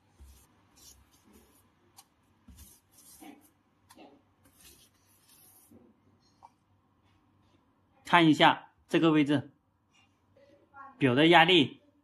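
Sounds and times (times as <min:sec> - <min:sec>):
brush scratching on tubing: 0:00.0 - 0:01.8, 0:02.5 - 0:05.9.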